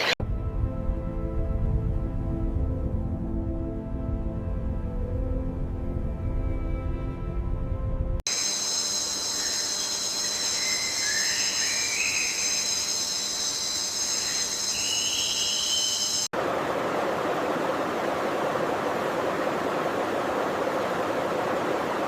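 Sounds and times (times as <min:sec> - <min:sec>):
music: 0:00.2 - 0:08.2
faint chirps: 0:08.3 - 0:16.3
insect chorus: 0:08.3 - 0:16.3
rushing water: 0:16.3 - 0:22.0.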